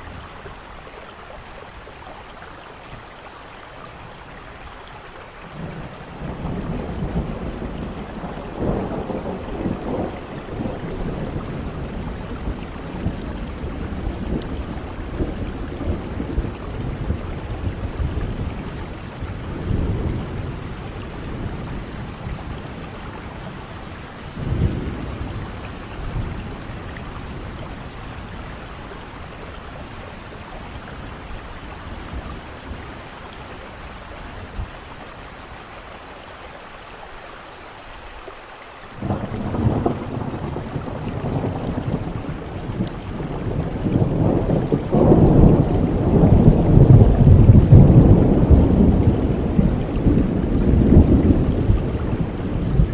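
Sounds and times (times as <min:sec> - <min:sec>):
heavy rain: 0:00.0 - 0:52.9
rolling thunder: 0:05.5 - 0:33.2, 0:39.0 - 0:52.9.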